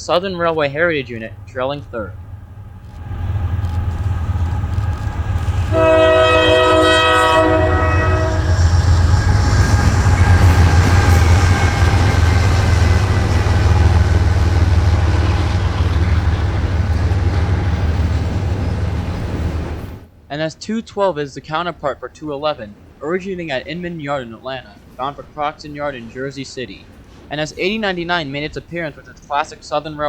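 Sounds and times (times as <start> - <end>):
diesel locomotives running: 0.0 - 20.2
train air horn: 5.1 - 17.8.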